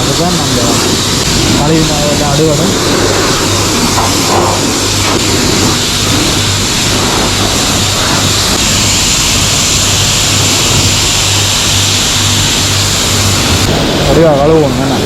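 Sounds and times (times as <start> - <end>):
low hum: 0.0 - 15.0
pressure washer spraying water: 0.0 - 15.0.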